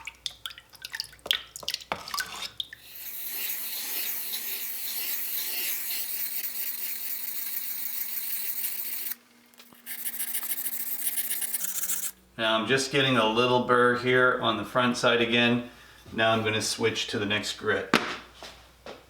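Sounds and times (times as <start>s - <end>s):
wet hiss of sharpening: 2.8s - 9.2s, 9.8s - 12.1s.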